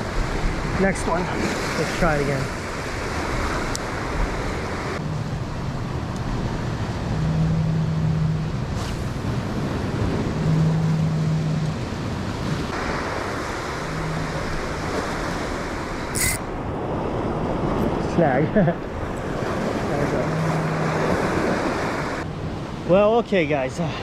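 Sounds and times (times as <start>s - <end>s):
ocean waves on rocky shore: 0.0s - 24.0s
wind on microphone: 2.5s - 18.2s
low steady hum: 5.0s - 12.7s.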